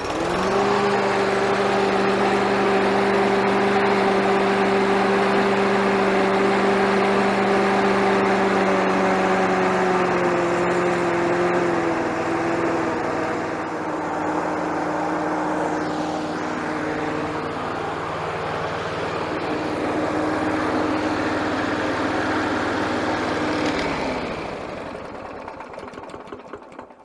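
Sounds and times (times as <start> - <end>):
engine running down to a stop: 0.0 - 27.0
lawnmower engine running: 0.0 - 27.0.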